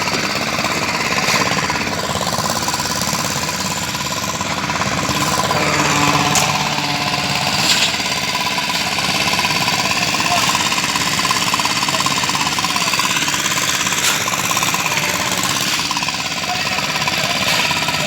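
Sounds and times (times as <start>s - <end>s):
steady machine whine: 0.0s - 17.1s
construction machinery rattling: 0.0s - 18.0s.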